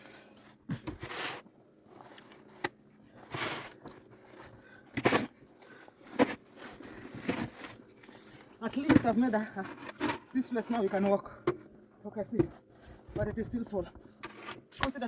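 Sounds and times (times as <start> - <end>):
snow crunching and scraping: 0.2 - 2.4, 3.1 - 11.3.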